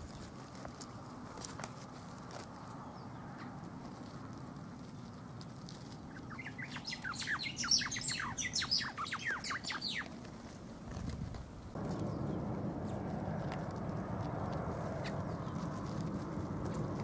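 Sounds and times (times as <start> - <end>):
songbird chirping: 4.8 - 10.3, 11.7 - 16.1.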